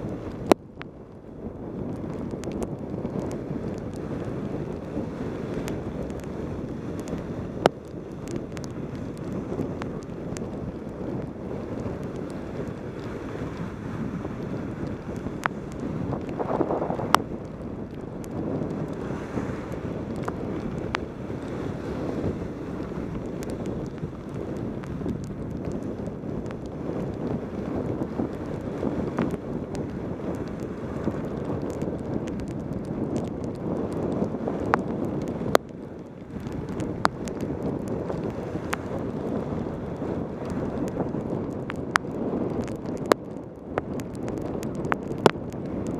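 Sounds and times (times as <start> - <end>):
wind buffeting microphone: 0.0 - 45.9
small ticks: 1.8 - 13.7, 14.3 - 21.6, 22.8 - 45.9.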